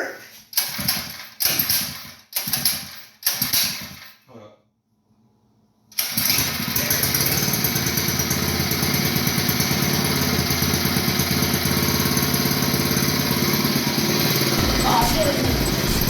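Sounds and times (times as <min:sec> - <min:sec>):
small engine starting and running: 0:00.5 - 0:04.2, 0:05.9 - 0:16.0.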